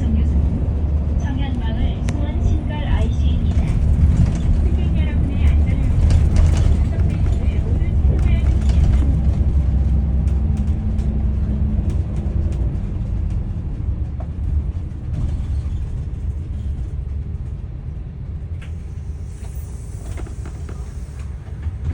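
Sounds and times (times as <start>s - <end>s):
bus engine low rumble: 0.0s - 21.9s
hiss: 19.2s - 21.3s.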